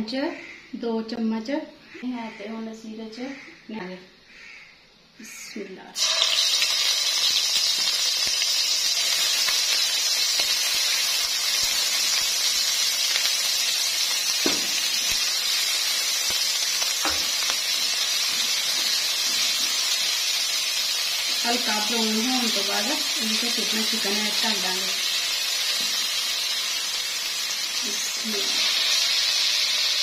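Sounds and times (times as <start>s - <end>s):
paste sizzling in hot oil: 6.0s - 30.0s
spatula knocking in a pan: 14.4s - 14.8s.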